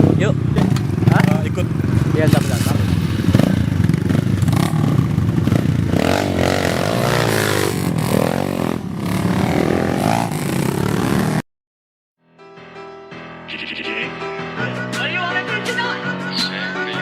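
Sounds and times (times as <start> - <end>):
loud rough background noise: 0.0 - 11.4
motocross bike engines revving: 0.0 - 11.4
music: 12.2 - 17.0.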